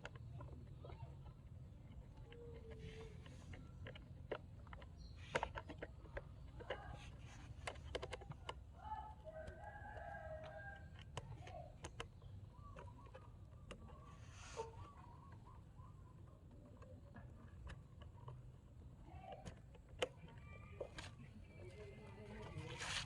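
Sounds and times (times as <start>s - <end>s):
distant rooster crowing: 9.2s - 11.0s.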